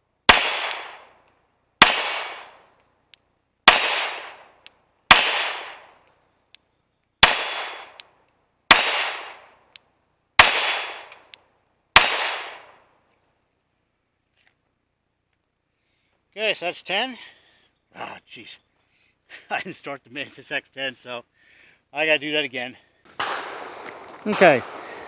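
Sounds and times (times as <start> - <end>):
pistol shots: 0.3 - 1.1, 1.8 - 2.6, 3.7 - 6.0, 7.2 - 8.0, 8.7 - 9.5, 10.4 - 11.3, 12.0 - 12.8, 23.1 - 25.0.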